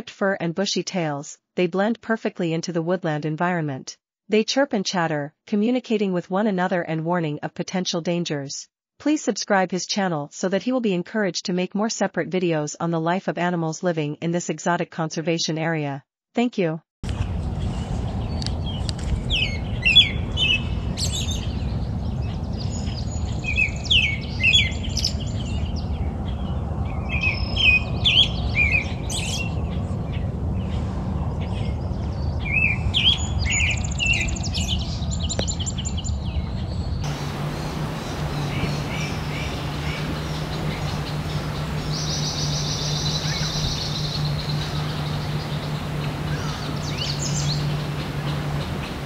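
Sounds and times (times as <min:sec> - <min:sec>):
steady low rumble: 0:17.1 - 0:49.0
songbirds chirping and singing: 0:32.4 - 0:49.0
steady low hum: 0:36.8 - 0:49.0.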